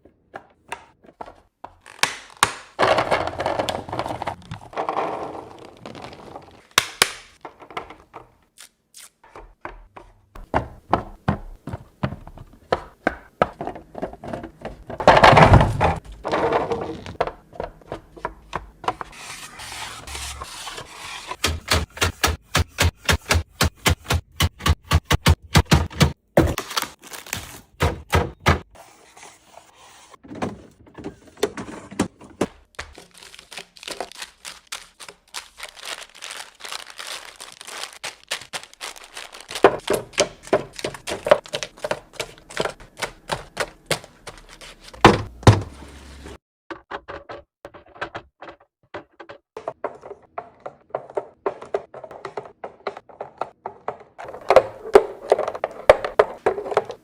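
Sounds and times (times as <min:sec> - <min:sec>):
containers clicking and thunking: 0:02.4 - 0:08.4, 0:09.4 - 0:19.1, 0:30.2 - 0:45.7, 0:46.7 - 0:57.0.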